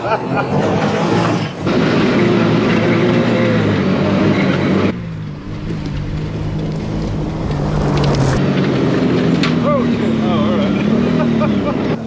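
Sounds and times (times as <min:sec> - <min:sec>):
truck engine humming: 0:00.0 - 0:02.2
road and wind rush: 0:00.0 - 0:12.0.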